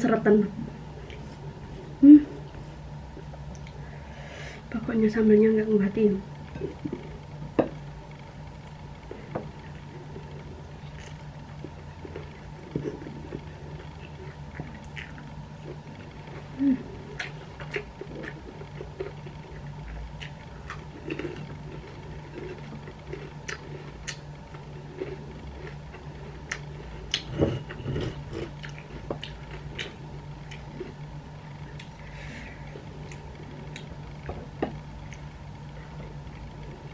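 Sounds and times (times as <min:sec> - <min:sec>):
steady low hum: 0:00.0 - 0:36.9
person chewing food: 0:08.6 - 0:36.9.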